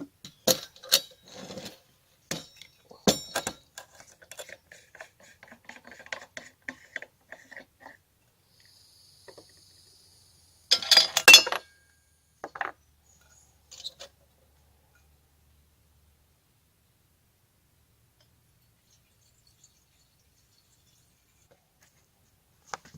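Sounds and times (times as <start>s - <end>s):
dishes and cookware clattering: 2.3s - 5.1s, 10.7s - 11.6s.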